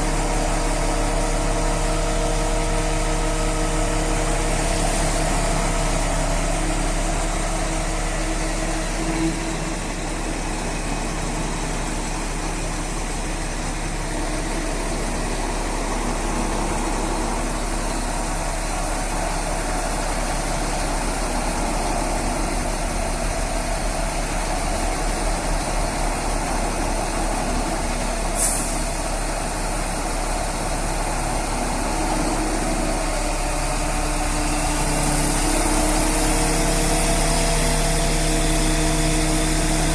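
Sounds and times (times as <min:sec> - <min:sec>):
crane diesel engine running: 0:00.0 - 0:39.9
short sharp hiss: 0:28.4 - 0:28.9.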